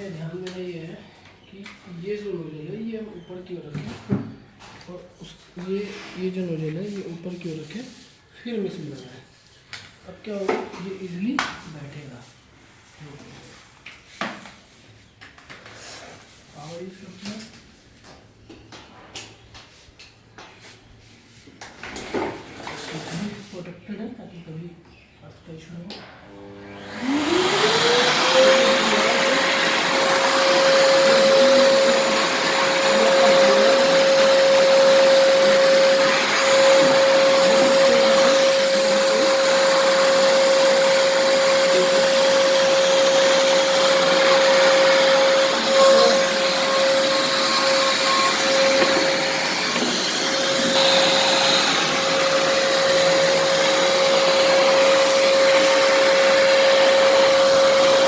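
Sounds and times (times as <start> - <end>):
vacuum cleaner motor whine: 26.2 - 58.0.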